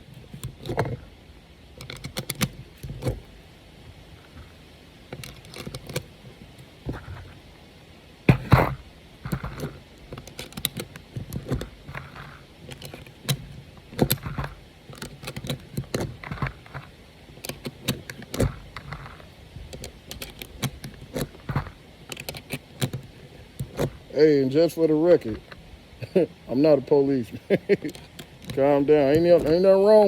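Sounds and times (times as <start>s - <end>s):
rounds clicking into magazine: 9.3s - 24.0s.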